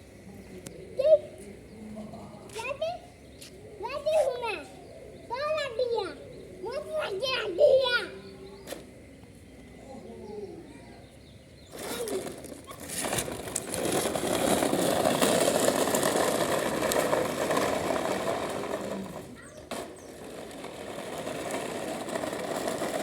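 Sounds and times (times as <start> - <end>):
small engine rattly buzz: 11.6 - 23.0.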